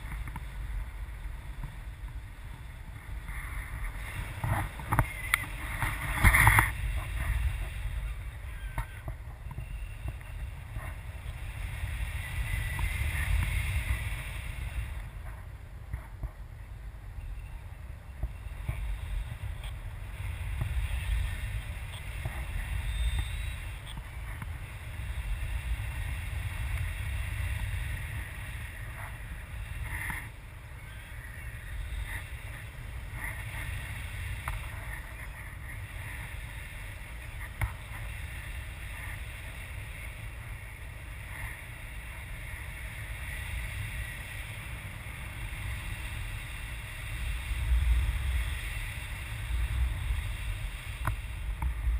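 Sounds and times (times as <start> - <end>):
wind buffeting microphone: 0.0 - 51.9.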